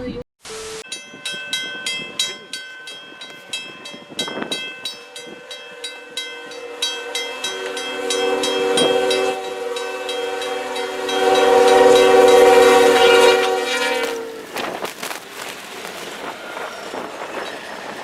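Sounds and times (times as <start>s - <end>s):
rapid bell ringing: 0.9s - 12.7s
train horn chord: 5.1s - 14.6s.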